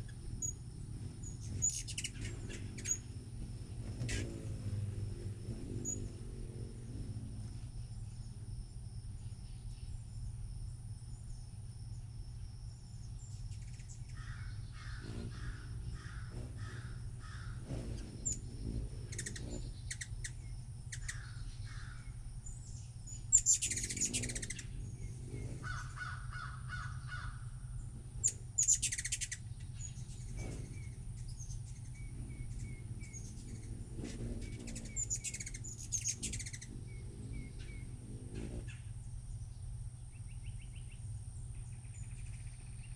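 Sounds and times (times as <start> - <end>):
birds chirping: 0.0 - 8.4, 12.7 - 42.9
steady low hum: 0.0 - 42.9
loud harsh bird calls: 13.6 - 22.2, 22.8 - 39.1.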